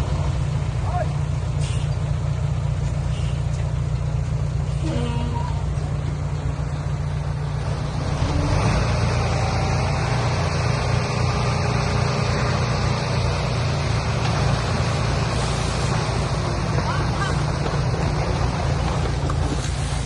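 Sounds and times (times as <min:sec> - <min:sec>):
diesel engine rumbling: 0:00.0 - 0:20.0
broad rushing noise: 0:07.6 - 0:20.0.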